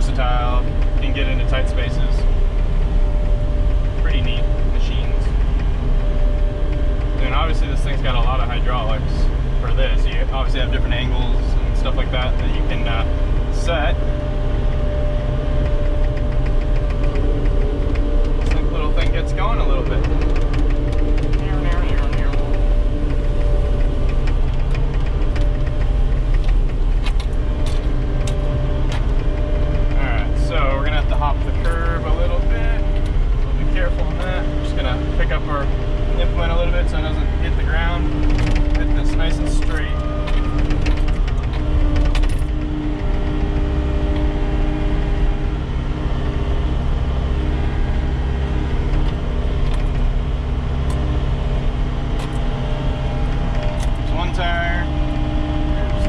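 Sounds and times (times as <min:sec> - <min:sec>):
diesel engine running: 0:00.0 - 0:56.0
high hum: 0:00.0 - 0:56.0
short clicks and rattles: 0:09.7 - 0:45.6, 0:47.3 - 0:56.0.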